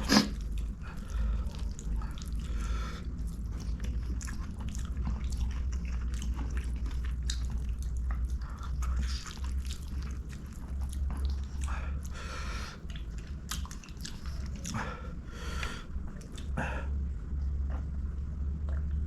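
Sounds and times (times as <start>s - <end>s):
chewing and wet mouth sounds: 0.0s - 19.0s
steady low hum: 0.0s - 19.0s
small mouth clicks and smacks: 3.2s - 12.2s, 12.8s - 16.6s.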